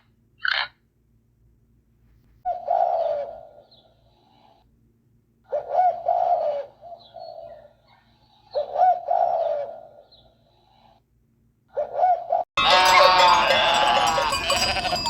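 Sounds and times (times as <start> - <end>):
pigeon cooing: 2.5 - 3.8, 5.5 - 7.7, 8.5 - 10.1, 11.7 - 12.4.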